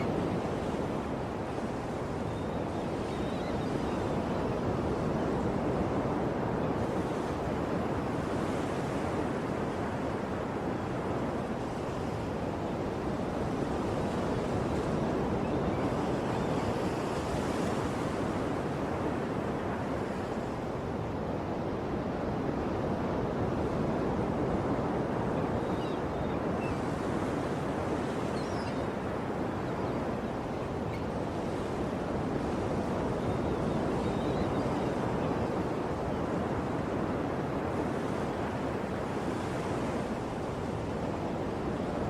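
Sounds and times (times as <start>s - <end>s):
sea waves rushing surf: 0.0s - 42.0s.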